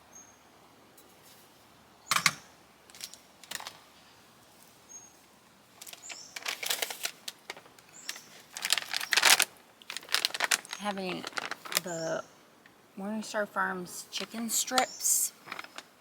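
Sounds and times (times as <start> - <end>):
plastic packaging crinkling: 5.7 - 12.1, 15.4 - 16.0.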